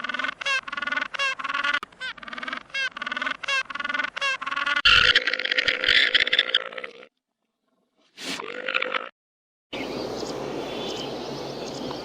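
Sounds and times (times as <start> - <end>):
waterfowl honking calls: 0.0 - 5.1.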